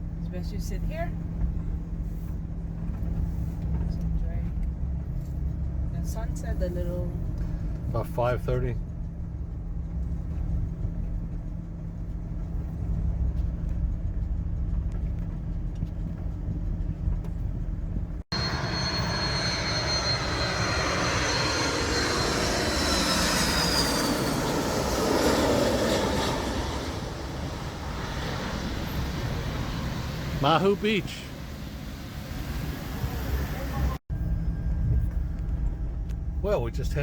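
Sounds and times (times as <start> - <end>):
low steady rumble: 0.0 - 37.0
high turbine whine: 18.3 - 36.6
jet airliner passing overhead: 18.3 - 37.0.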